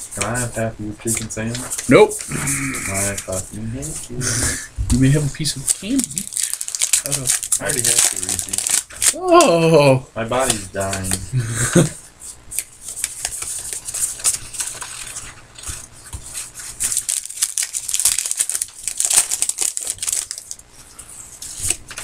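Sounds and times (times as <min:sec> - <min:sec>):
wrappers crinkling: 0:05.6 - 0:09.4, 0:16.4 - 0:20.7.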